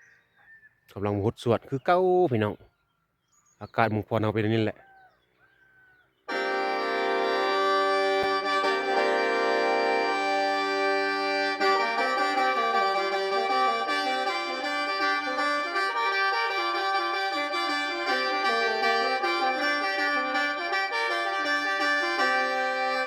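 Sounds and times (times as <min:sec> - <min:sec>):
mouth organ playing chords: 0:06.3 - 0:23.0.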